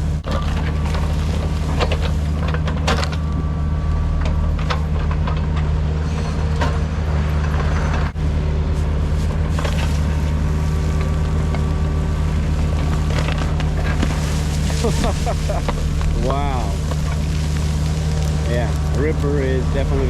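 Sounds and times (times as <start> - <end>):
roots cracking and snapping: 0.0 - 3.4, 8.1 - 20.0
diesel excavator engine running: 0.0 - 20.0.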